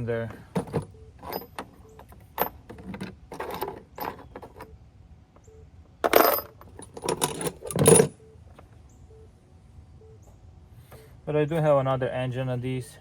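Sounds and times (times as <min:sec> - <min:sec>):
metal tools clinking: 0:00.0 - 0:04.7, 0:06.0 - 0:08.2.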